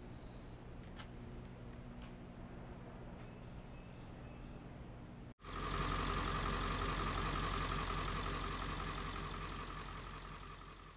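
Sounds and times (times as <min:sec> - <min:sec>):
faint hum: 0:00.0 - 0:05.3
diesel engine idling: 0:05.4 - 0:10.9.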